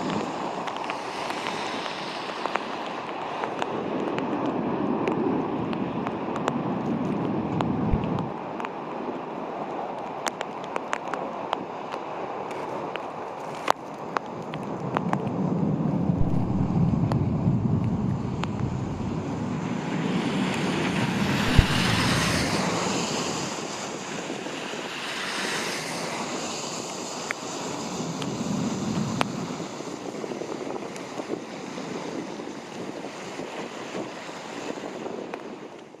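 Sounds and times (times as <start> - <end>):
strong gusty wind: 0.0 - 36.0
low rumble: 7.6 - 8.3, 15.9 - 19.9, 21.0 - 22.8.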